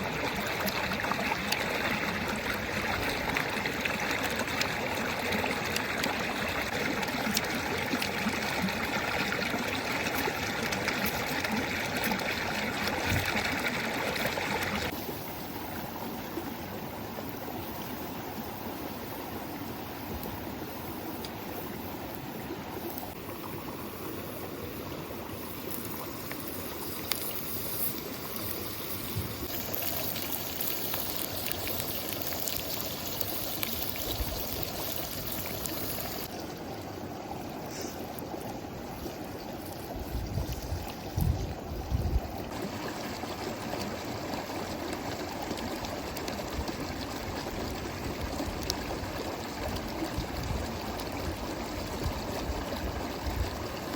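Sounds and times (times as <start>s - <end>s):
stream flowing: 0.0s - 53.9s.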